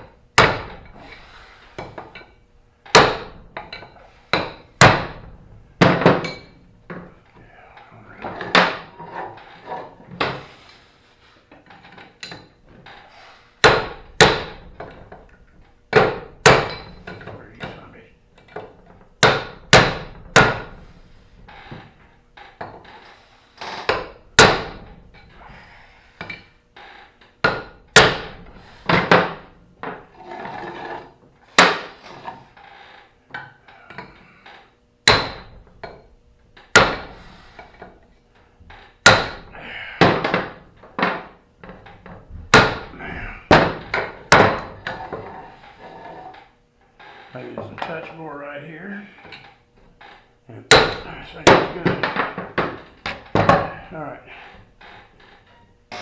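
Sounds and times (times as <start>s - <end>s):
hammer striking metal: 15.9s - 17.7s, 23.9s - 24.9s, 35.1s - 35.5s, 39.0s - 40.5s, 50.7s - 52.2s.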